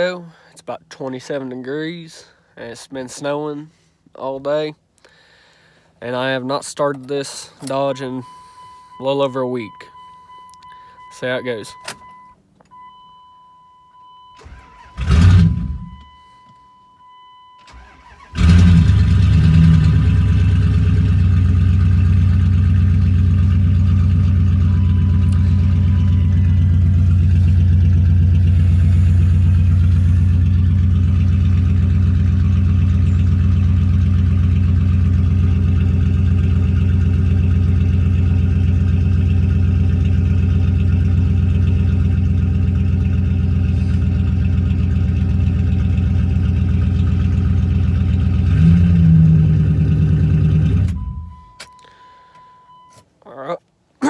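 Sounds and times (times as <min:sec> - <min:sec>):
car engine starting and idling: 0:14.0 - 0:16.4, 0:17.0 - 0:53.0.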